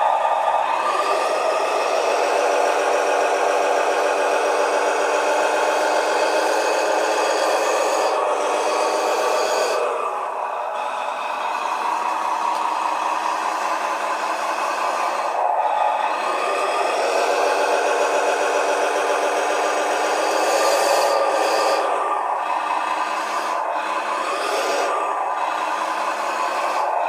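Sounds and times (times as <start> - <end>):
simulated engine sound from speaker: 0.0 - 27.0.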